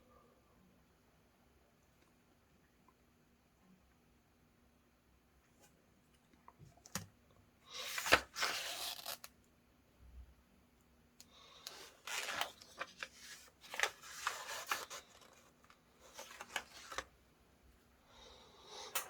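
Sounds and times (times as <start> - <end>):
paper rustling and scraping: 7.8 - 9.3, 11.7 - 17.1.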